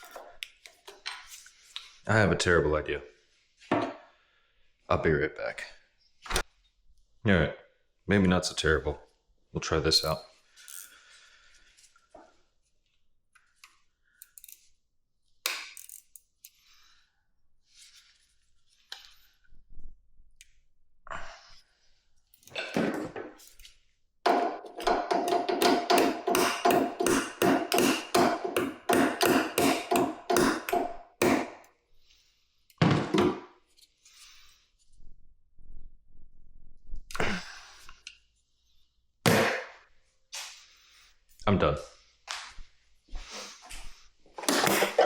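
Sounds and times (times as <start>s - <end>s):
tools knocking on metal: 24.3s - 31.6s.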